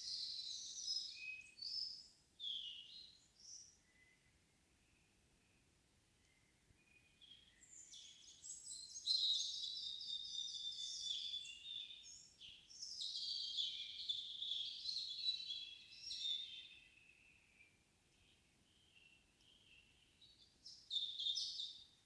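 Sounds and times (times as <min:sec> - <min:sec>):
songbird twittering: 0:06.3 - 0:22.0.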